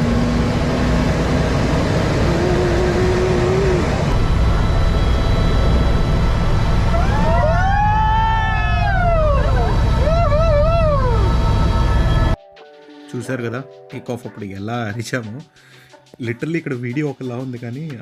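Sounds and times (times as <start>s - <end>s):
helicopter engine and rotor: 0.0s - 12.4s
passengers screaming: 2.0s - 4.2s, 6.9s - 12.4s.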